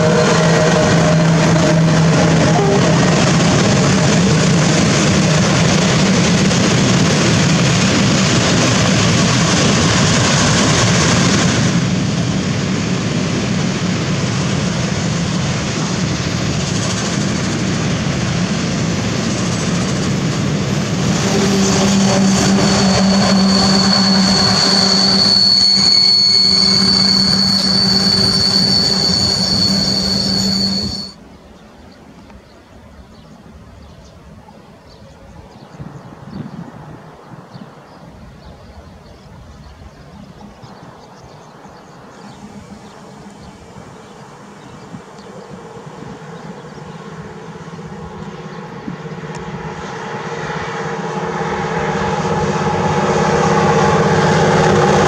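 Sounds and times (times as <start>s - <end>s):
high wheel squeal: 0.0s - 5.5s, 20.8s - 31.2s
freight train rumbling past: 0.0s - 31.9s, 32.9s - 55.0s.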